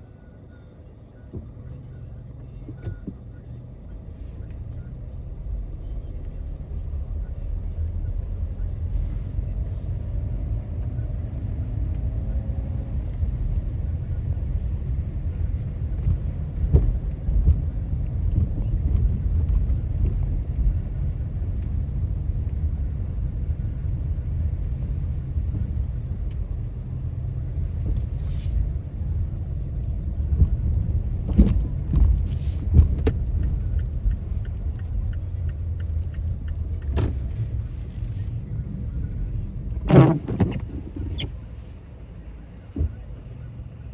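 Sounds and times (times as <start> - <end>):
road and engine rumble: 0.0 - 43.9.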